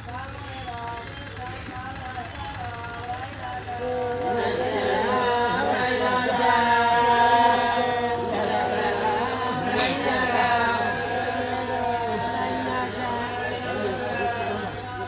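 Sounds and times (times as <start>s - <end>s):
steady low hum: 0.6s - 15.0s
voices singing long gliding notes: 3.0s - 15.0s.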